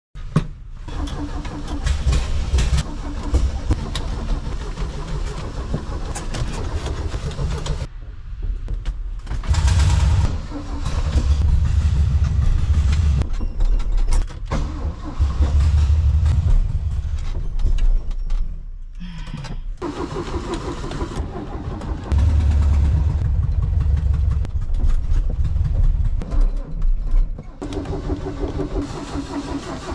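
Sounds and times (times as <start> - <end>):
car engine revving: 9.4 - 13.2, 14.6 - 17.3, 19.8 - 26.3, 27.6 - 29.9.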